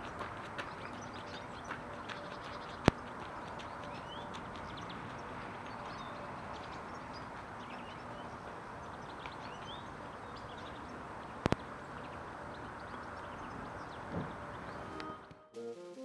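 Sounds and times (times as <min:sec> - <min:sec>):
songbirds chirping: 0:00.0 - 0:15.5
background music: 0:14.2 - 0:16.0.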